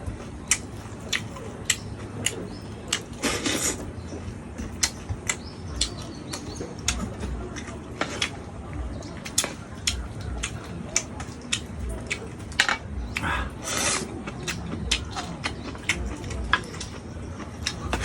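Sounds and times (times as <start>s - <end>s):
chewing and lip smacks: 0.0s - 18.0s
crunch or slurp: 2.8s - 3.9s, 13.2s - 15.3s.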